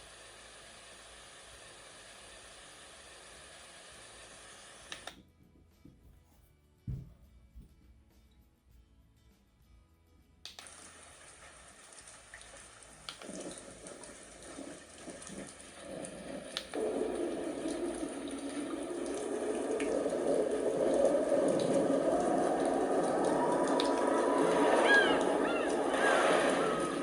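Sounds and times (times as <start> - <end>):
white noise running water: 0.0 - 5.1, 10.6 - 27.0.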